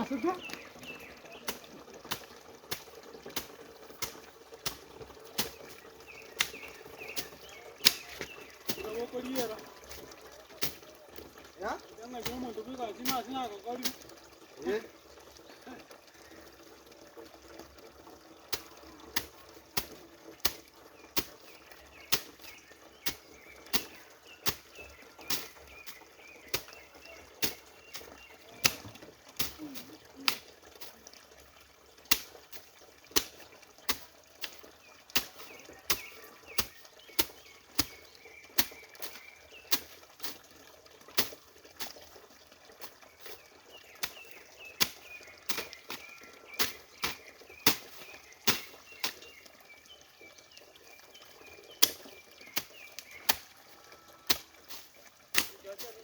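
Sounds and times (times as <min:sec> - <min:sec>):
hand tool chopping vegetation: 0:00.4 - 0:10.9, 0:12.2 - 0:14.0, 0:21.2 - 0:30.5, 0:32.1 - 0:40.4, 0:41.2 - 0:42.0, 0:43.3 - 0:49.4, 0:51.8 - 0:53.5, 0:54.3 - 0:56.0.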